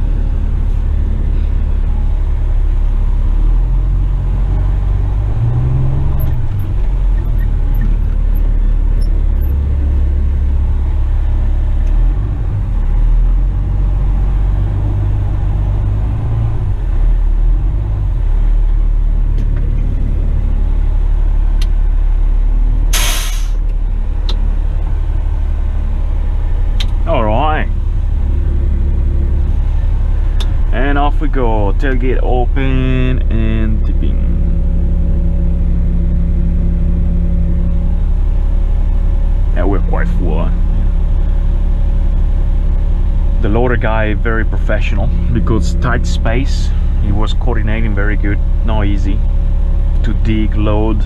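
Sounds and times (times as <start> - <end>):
diesel truck engine revving: 0.0 - 51.0
air brakes hissing: 22.9 - 23.6.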